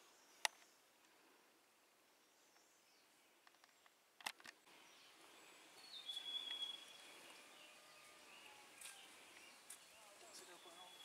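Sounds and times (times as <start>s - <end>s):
birds calling: 2.2s - 11.0s
thin whistled bird note: 6.0s - 6.9s.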